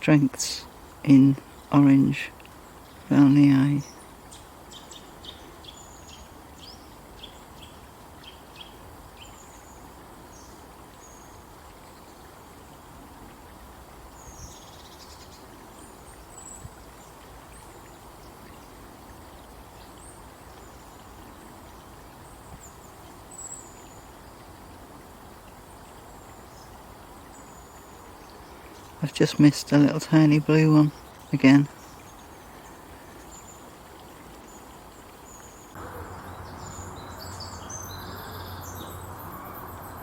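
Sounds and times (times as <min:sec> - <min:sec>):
birds chirping: 0:00.0 - 0:11.4, 0:25.7 - 0:40.0
steady outdoor hiss: 0:00.0 - 0:40.0.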